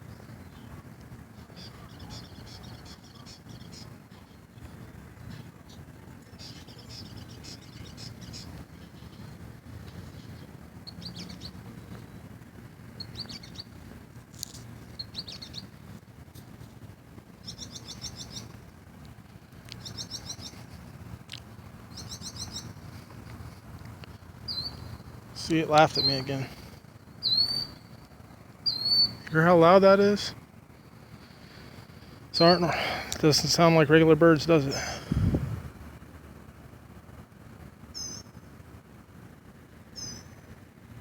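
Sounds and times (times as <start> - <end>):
small birds chattering: 0.0 - 13.8, 14.4 - 15.9, 17.3 - 18.6, 19.6 - 23.4, 24.1 - 30.3, 31.1 - 35.2, 38.0 - 38.4, 40.0 - 40.4
steady low hum: 0.0 - 41.0.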